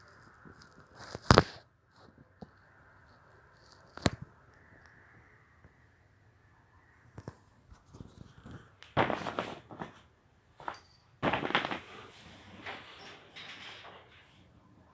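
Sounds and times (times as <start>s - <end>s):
cat scuffling and rustling: 7.7s - 14.9s.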